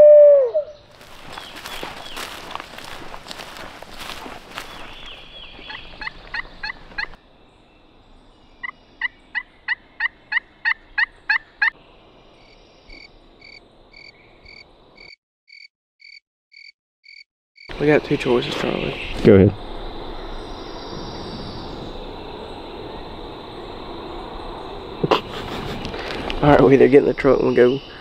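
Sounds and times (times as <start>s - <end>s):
turkey yelping: 5.6s - 7.2s.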